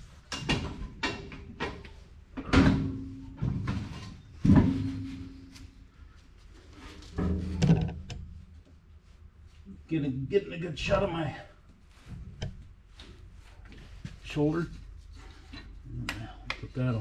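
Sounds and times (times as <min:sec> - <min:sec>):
metal knocks and clunks: 0:00.3 - 0:05.8, 0:07.0 - 0:08.5, 0:12.1 - 0:12.7.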